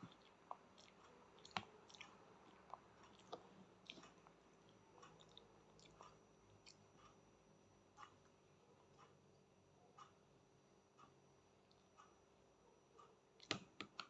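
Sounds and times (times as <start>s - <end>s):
child chewing food: 0.0s - 7.2s.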